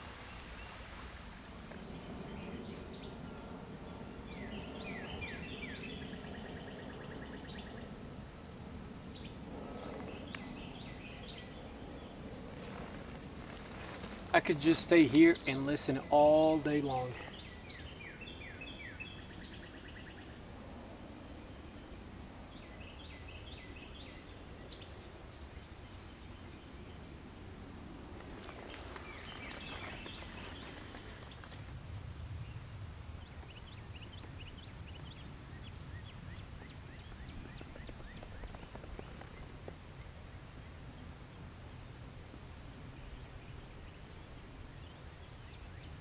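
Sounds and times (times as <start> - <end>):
birds chirping trills: 1.8 - 21.0.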